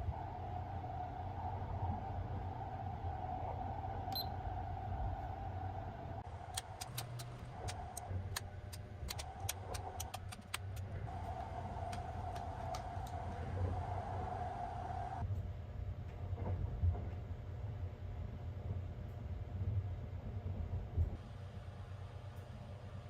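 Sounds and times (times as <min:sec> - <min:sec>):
train rumble and hum: 0:00.0 - 0:23.0
sharp light clicks: 0:06.5 - 0:10.9.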